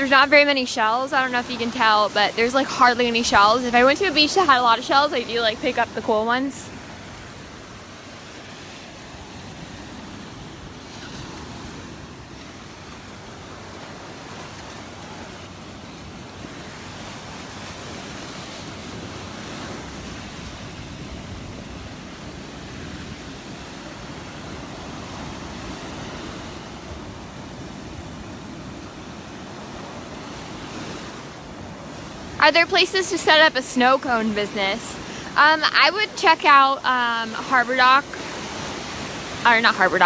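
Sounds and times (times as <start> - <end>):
small waves washing onto beach: 0.0 - 40.0.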